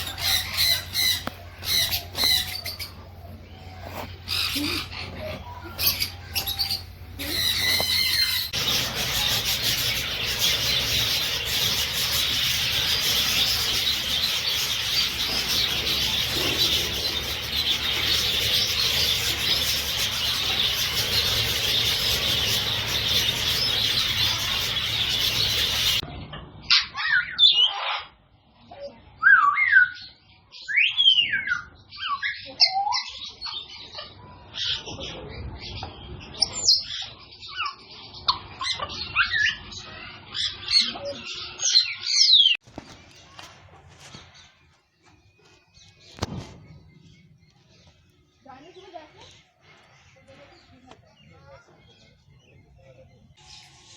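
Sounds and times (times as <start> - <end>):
parrots chattering: 0.0 - 26.0.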